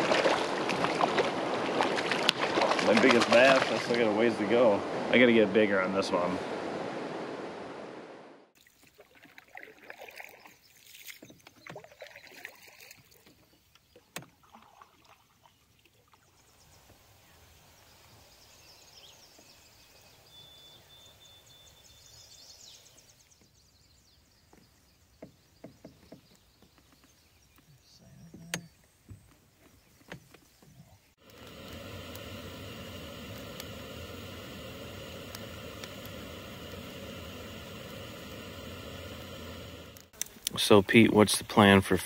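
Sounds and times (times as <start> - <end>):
paddle water swishes: 0.0 - 20.3
paddle knocking against hull: 25.2 - 27.1.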